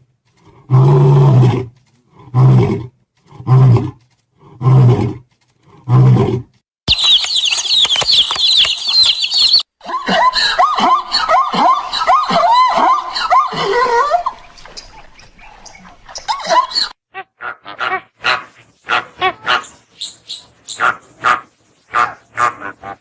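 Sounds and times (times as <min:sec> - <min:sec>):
small birds chirping: 0:06.9 - 0:09.7, 0:14.4 - 0:16.9, 0:18.4 - 0:22.4.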